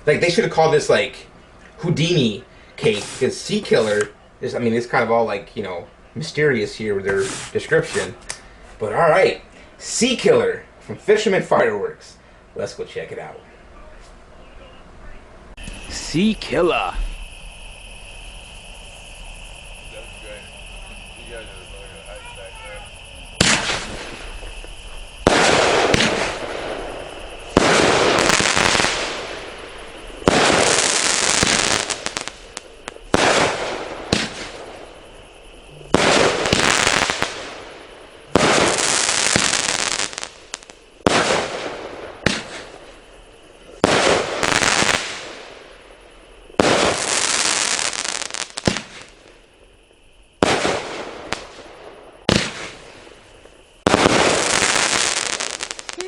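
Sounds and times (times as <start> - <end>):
firework hissing crackle: 2.0 - 5.0, 6.3 - 9.2, 15.5 - 56.0
firework bangs: 2.8 - 4.1, 7.0 - 8.4, 15.6 - 56.0.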